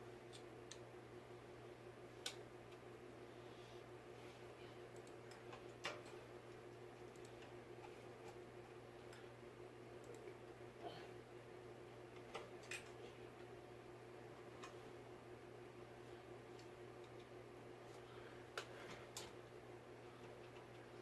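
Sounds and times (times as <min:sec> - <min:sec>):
faint steady hum: 0:00.0 - 0:21.0
small clicks and taps of parts: 0:02.2 - 0:02.8, 0:04.9 - 0:09.2, 0:16.5 - 0:17.3.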